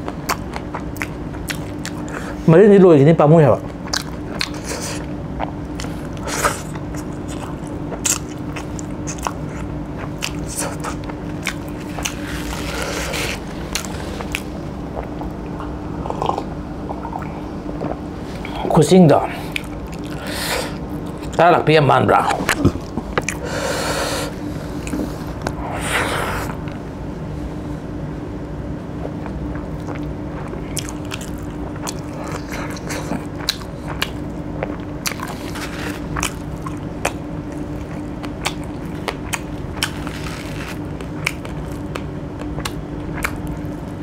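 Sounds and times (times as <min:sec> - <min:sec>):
person chewing and biting food: 0:00.0 - 0:02.4, 0:03.6 - 0:18.7, 0:19.4 - 0:21.4, 0:22.3 - 0:26.8, 0:29.0 - 0:44.0
steady low hum: 0:00.0 - 0:44.0.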